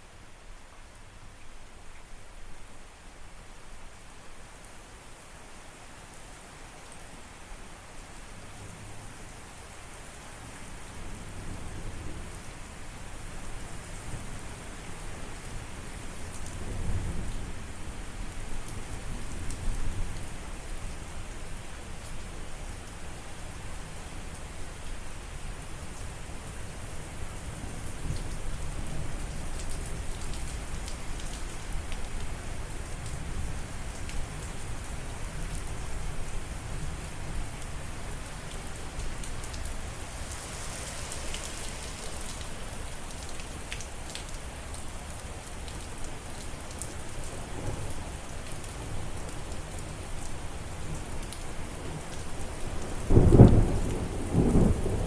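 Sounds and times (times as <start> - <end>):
rain falling: 0.0 - 55.0
thunder rumbling: 53.1 - 55.0.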